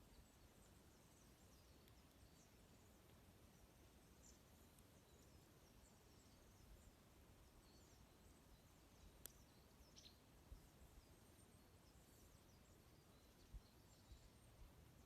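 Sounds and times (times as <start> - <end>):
small songbirds chirping: 0.0 - 15.0
campfire crackle: 1.7 - 5.0.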